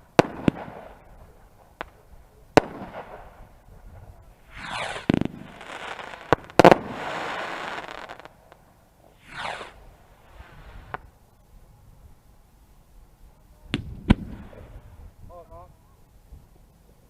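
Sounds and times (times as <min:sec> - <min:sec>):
firework bangs: 0:00.0 - 0:11.1, 0:13.7 - 0:14.8
firework crackling: 0:00.0 - 0:11.2
firework whistle falling: 0:04.6 - 0:05.3, 0:09.2 - 0:09.8.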